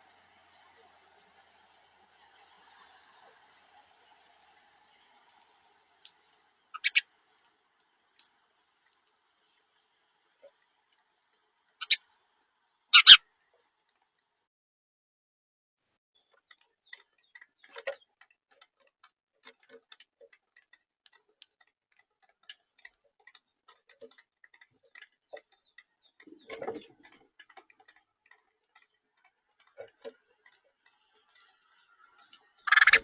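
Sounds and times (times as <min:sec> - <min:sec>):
small clicks and taps: 0:07.3 - 0:09.3, 0:16.2 - 0:32.9.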